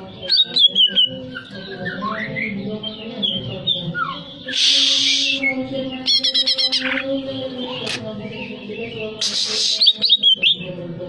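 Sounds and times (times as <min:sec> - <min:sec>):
bird singing whistled notes: 0:09.2 - 0:10.7.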